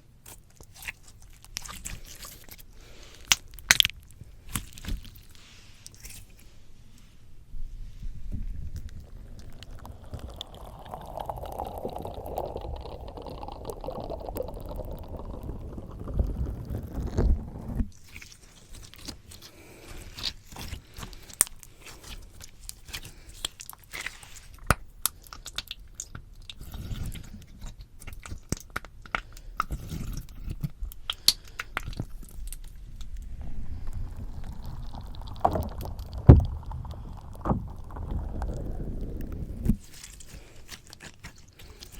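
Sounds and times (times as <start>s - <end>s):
slime squishing on microphone: 0.0s - 41.9s
sticky slime popping: 0.2s - 6.4s, 8.4s - 41.9s
low thumps: 33.2s - 39.8s.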